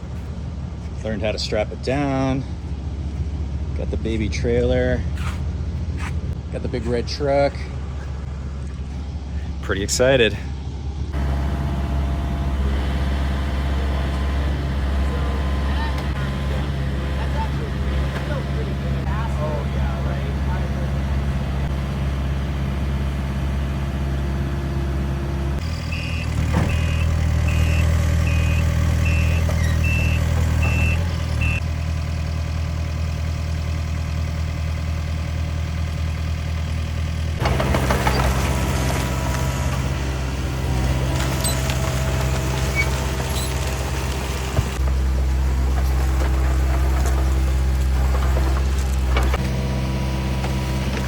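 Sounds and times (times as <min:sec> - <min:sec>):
heavy vehicle engine running: 0:00.0 - 0:51.0
backup alarm beeping: 0:25.6 - 0:31.6.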